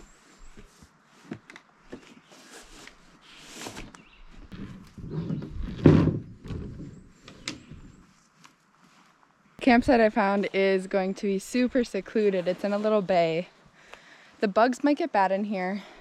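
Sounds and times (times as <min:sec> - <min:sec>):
rustling: 0:00.0 - 0:14.1
knocks and bumps: 0:04.5 - 0:07.1
heavy thud: 0:05.6 - 0:07.0.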